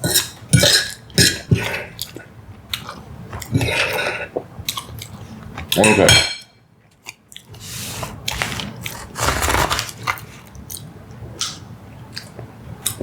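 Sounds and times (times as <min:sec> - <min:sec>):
person chewing food: 0:08.1 - 0:10.4.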